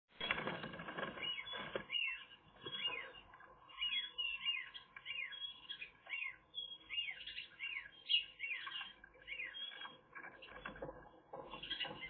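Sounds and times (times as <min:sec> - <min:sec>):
faint scraping and rustling: 0:00.1 - 0:05.2, 0:08.6 - 0:12.0
small bird chirping: 0:00.2 - 0:12.0.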